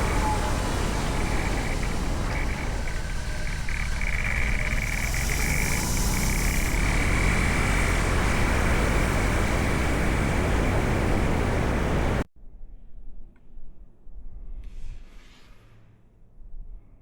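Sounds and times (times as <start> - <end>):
loud rushing noise: 0.0 - 12.2
motorcycle engine running: 0.0 - 12.2.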